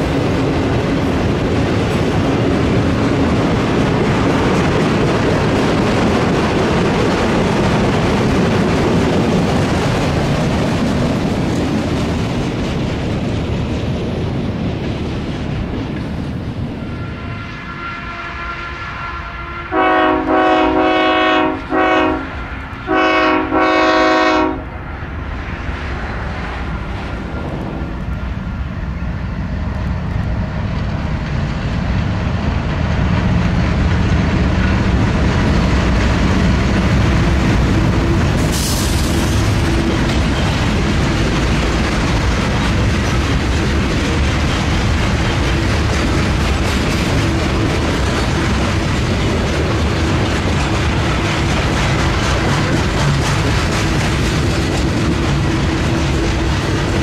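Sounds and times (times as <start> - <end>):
train rumbling past: 0.0 - 57.0
wheels clattering over rail joints: 30.7 - 57.0
brief high hiss: 38.4 - 39.4.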